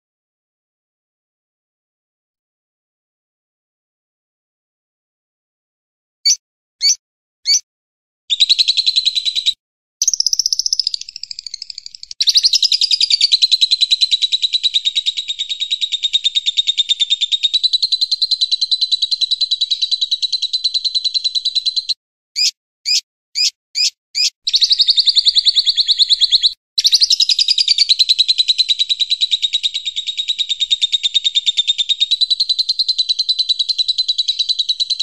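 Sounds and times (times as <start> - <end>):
sharp bird chirps: 6.2 - 7.7, 8.3 - 35.0
songbird high trills: 6.3 - 7.6, 8.3 - 27.9.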